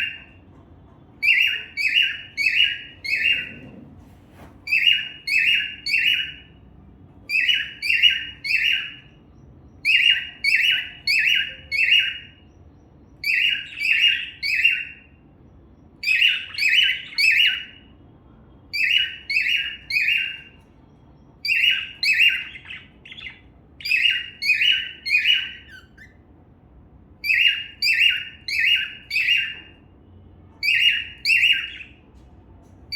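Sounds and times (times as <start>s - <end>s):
cockatiel chirping: 0.0s - 0.4s, 1.2s - 3.7s, 4.6s - 6.6s, 7.2s - 9.2s, 9.8s - 12.6s, 13.2s - 15.1s, 16.0s - 17.9s, 18.7s - 20.6s, 21.4s - 26.3s, 27.2s - 29.8s, 30.6s - 32.0s.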